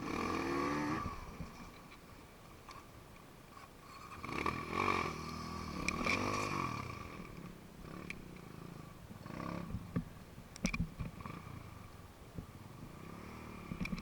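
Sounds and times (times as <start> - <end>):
dirt bike engine revving: 0.0 - 1.7, 4.0 - 9.9, 12.9 - 13.8.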